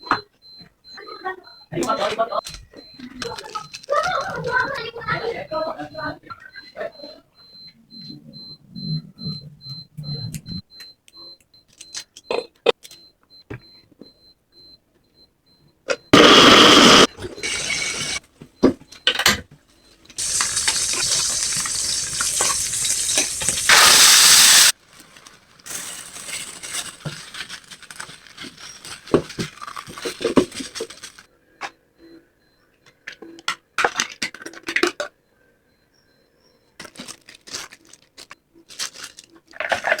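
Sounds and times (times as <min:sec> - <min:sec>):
steady cooking hiss: 0:16.2 - 0:18.2, 0:20.2 - 0:24.8
utensils and dishes clinking: 0:20.2 - 0:24.2.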